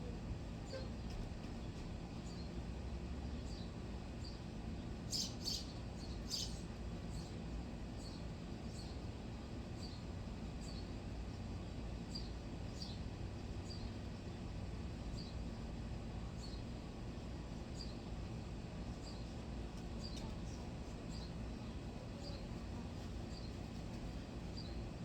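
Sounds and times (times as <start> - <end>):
small bird chirping: 5.1 - 7.4, 22.2 - 22.5, 24.5 - 24.8.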